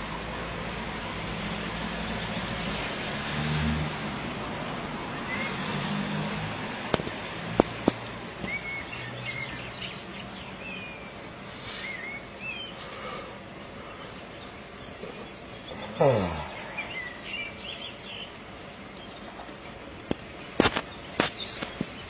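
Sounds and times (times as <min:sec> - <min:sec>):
small birds chirping: 0:05.1 - 0:05.8, 0:06.6 - 0:22.0.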